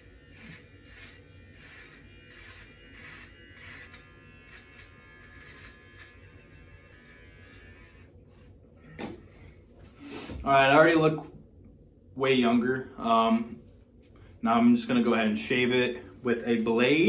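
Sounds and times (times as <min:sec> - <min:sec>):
electric beard trimmer buzzing: 0:00.0 - 0:09.4.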